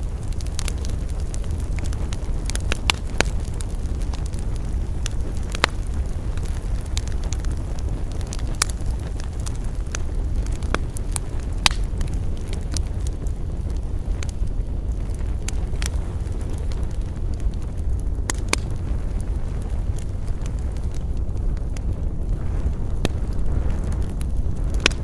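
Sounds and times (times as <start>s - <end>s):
fire flames rumbling: 0.0s - 25.0s
wood crackling and popping: 0.0s - 25.0s
sharp wood snaps: 11.6s - 11.8s, 18.3s - 18.6s, 24.8s - 25.0s.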